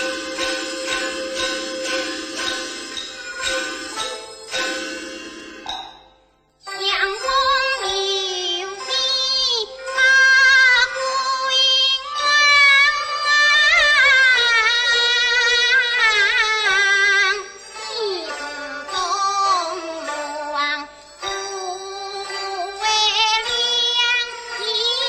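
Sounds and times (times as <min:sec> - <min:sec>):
instrumental accompaniment: 0:00.0 - 0:25.0
opera singing with vibrato: 0:06.6 - 0:25.0.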